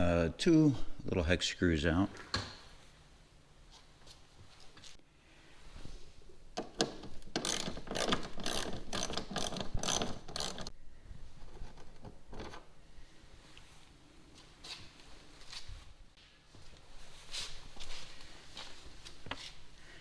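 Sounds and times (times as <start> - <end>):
socket ratchet clicking: 6.6 - 10.7.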